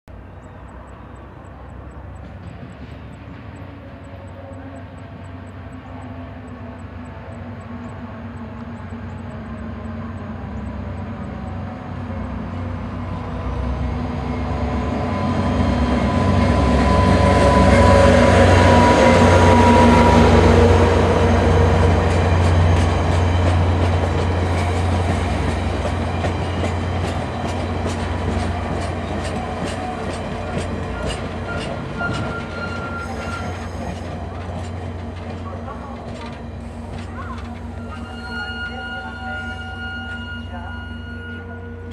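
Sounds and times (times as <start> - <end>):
diesel locomotive engine drone: 0.1 - 41.9
train wheels clicking over rail joints: 0.4 - 5.4, 21.5 - 38.0.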